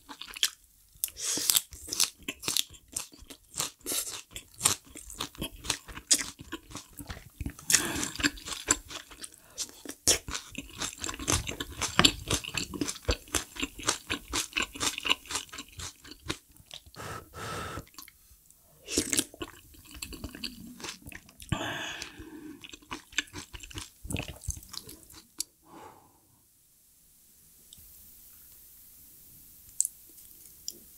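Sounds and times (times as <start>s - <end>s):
person chewing food: 0.0s - 18.2s, 18.9s - 25.5s.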